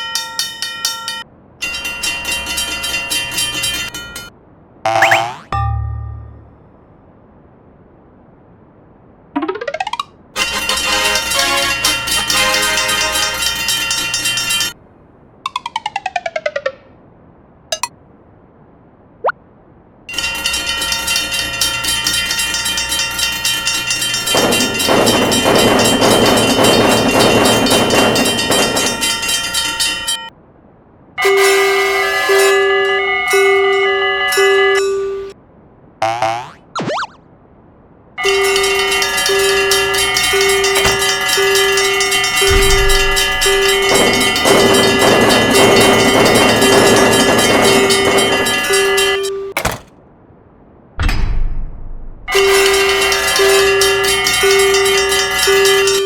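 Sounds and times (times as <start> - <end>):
railroad crossing bell ringing: 0.0 - 4.3, 5.0 - 6.7, 10.4 - 14.8, 17.7 - 17.9, 20.1 - 30.3, 31.2 - 35.4, 38.2 - 49.8, 52.3 - 56.0
passing train rushing: 10.4 - 14.8, 20.1 - 30.3, 38.2 - 49.4
rapid ticking: 10.4 - 14.8, 20.1 - 30.3, 38.2 - 49.3.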